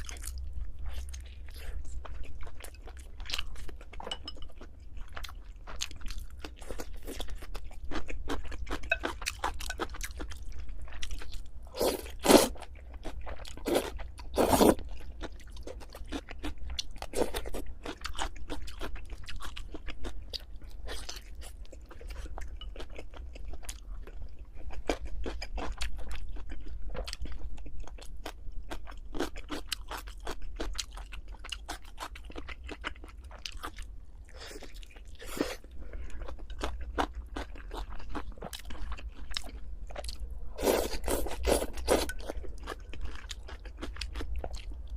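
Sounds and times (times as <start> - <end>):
chewing and crunching food: 0.0 - 44.9.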